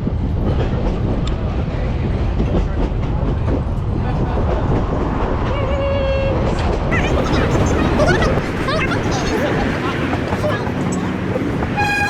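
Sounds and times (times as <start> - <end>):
train rumbling on track: 0.0 - 12.0
wheels clicking and knocking: 7.0 - 12.0.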